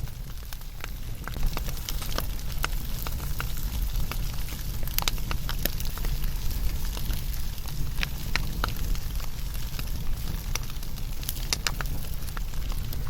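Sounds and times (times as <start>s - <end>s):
low fire rumble: 0.0s - 13.0s
wood fire crackling: 0.0s - 13.0s.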